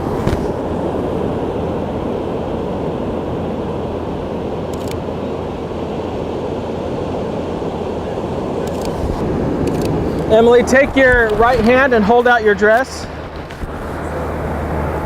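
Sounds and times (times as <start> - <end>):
beach ambience rushing noise: 0.0 - 15.0
camera shutter clicks: 4.7 - 5.0, 8.7 - 9.0.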